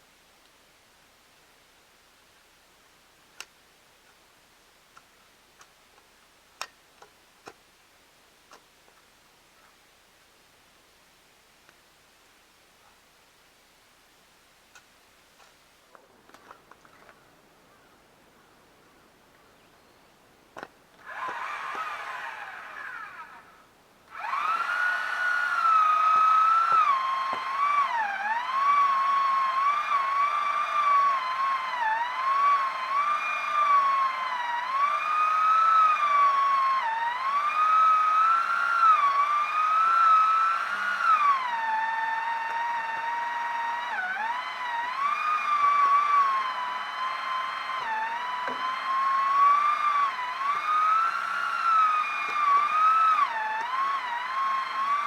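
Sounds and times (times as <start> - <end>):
chainsaw cutting logs: 6.6 - 7.6, 20.6 - 55.0.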